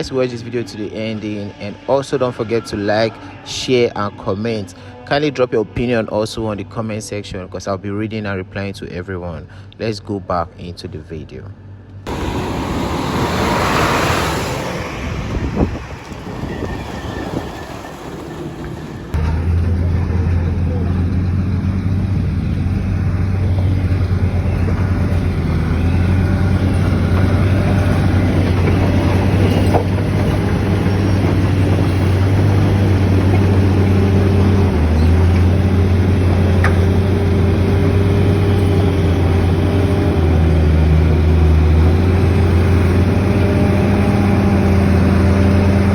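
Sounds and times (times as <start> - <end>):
engine humming: 11.5 - 45.9.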